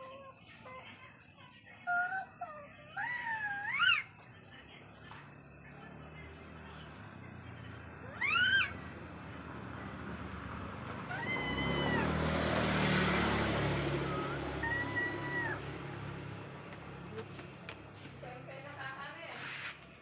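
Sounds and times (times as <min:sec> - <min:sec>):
cat meowing: 0:11.0 - 0:12.4, 0:14.0 - 0:15.7.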